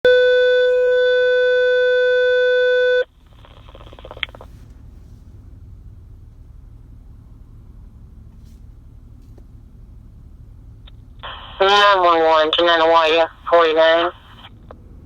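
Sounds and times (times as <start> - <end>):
low steady rumble: 0.1 - 15.0
radio static: 11.2 - 14.6.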